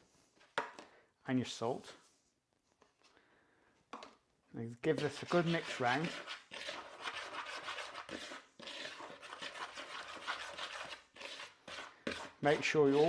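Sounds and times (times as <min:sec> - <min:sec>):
flour stirred in a bowl: 0:04.9 - 0:13.0.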